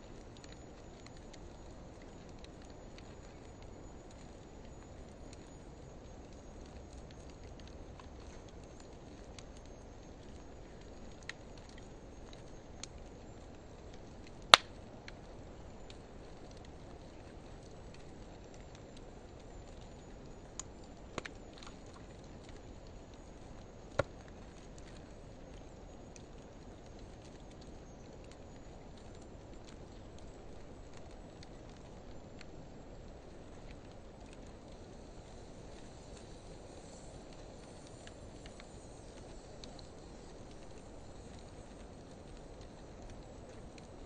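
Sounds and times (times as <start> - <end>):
logs burning with low hiss: 0.0 - 44.0
wood crackling pops: 14.0 - 15.2, 23.8 - 25.0.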